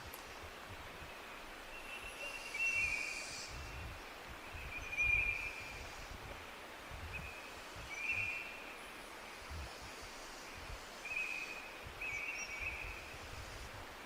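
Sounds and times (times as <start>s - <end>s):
low wind rumble: 0.0s - 14.0s
steady hiss: 0.0s - 14.0s.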